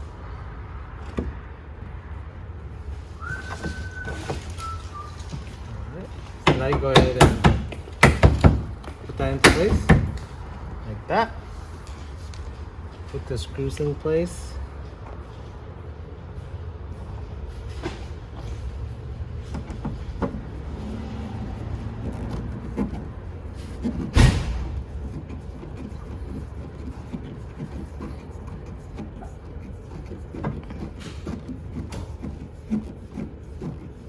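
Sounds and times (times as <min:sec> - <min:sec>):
light clicks and rubs: 0:19.5 - 0:34.0
sharp loud knock: 0:24.1 - 0:24.7.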